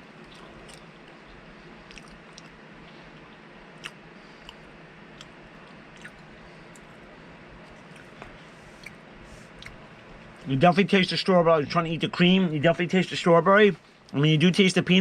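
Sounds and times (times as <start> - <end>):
man chewing with mouth clicks: 0.1 - 10.5.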